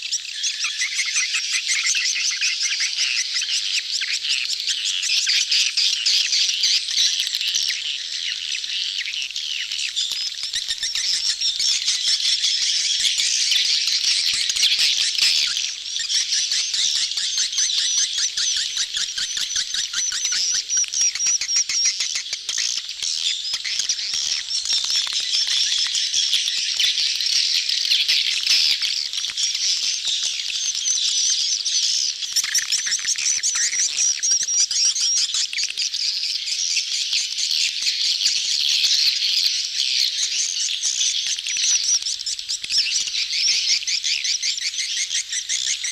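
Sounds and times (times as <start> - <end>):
swiftlets chattering and twittering: 9.7 - 45.9.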